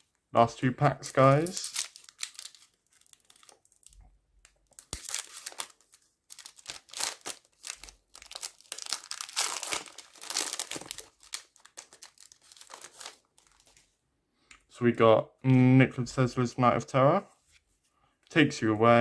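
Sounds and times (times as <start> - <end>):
foil pack tearing and crinkling: 1.2 - 3.9, 4.6 - 13.8.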